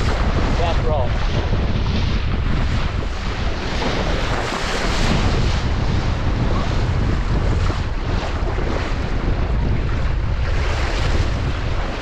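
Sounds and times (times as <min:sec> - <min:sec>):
water splashing along hull: 0:00.0 - 0:12.0
wind buffeting microphone: 0:00.0 - 0:12.0.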